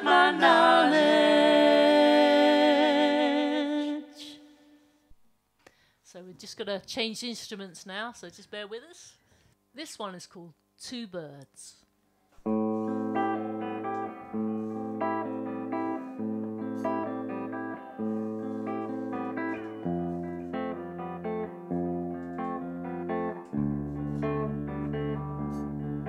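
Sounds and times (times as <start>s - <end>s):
picked guitar music: 12.4s - 26.0s.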